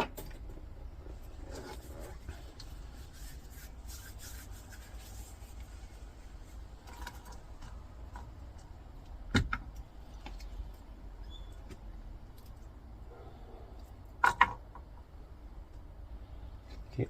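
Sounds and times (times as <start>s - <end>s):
low steady hum: 0.0s - 17.0s
scrap metal rubbing and clicking: 0.2s - 5.7s.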